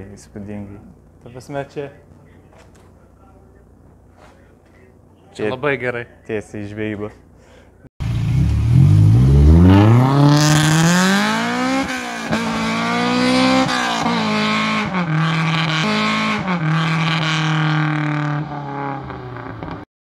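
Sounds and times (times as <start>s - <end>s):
car engine accelerating: 8.0s - 19.8s.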